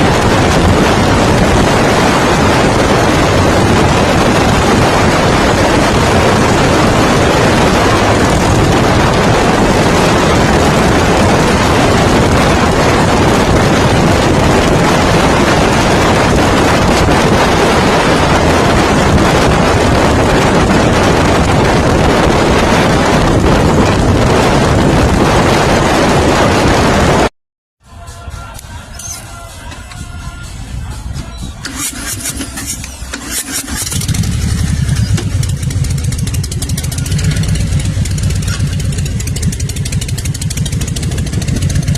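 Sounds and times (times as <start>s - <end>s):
motorcycle engine: 0.0s - 27.3s, 28.9s - 41.9s
wind buffeting microphone: 0.0s - 27.3s, 28.7s - 41.9s.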